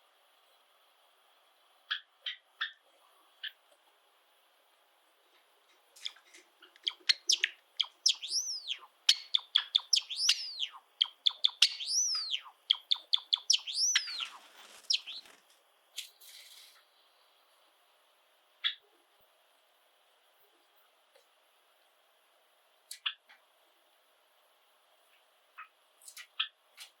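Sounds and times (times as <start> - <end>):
sparrow singing: 6.8 - 15.3.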